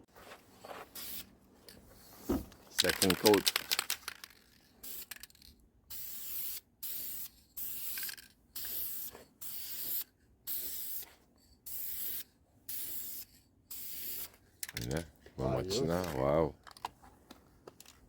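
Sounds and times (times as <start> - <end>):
spray paint hissing: 0.9 - 1.3, 4.8 - 14.4.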